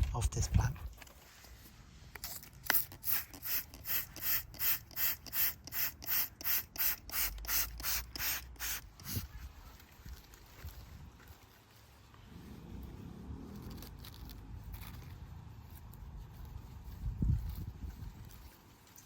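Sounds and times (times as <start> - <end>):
hand sprayer hissing bursts: 2.6 - 9.3.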